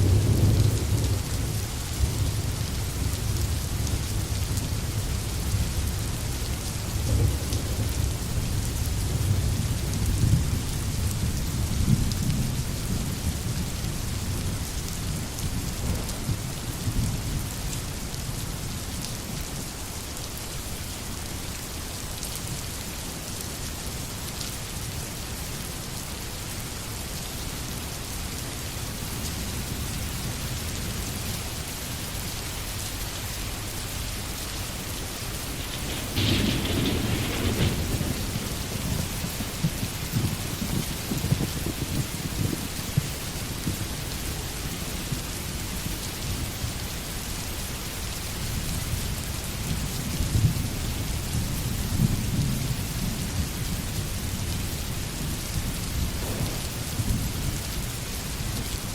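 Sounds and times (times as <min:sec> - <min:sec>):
rolling rumble of thunder: 0:00.0 - 0:18.2, 0:32.7 - 0:46.5, 0:48.6 - 0:58.9
rain falling in forest: 0:00.0 - 0:58.9.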